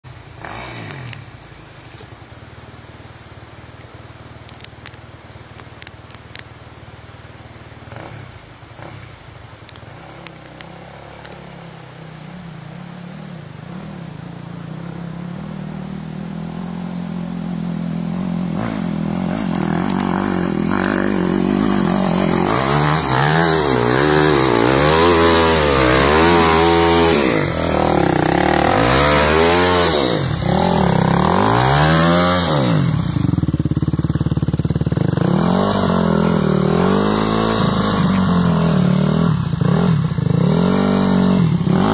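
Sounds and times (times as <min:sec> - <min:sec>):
motorcycle engine revving: 0:00.0 - 0:02.0, 0:07.8 - 0:41.9.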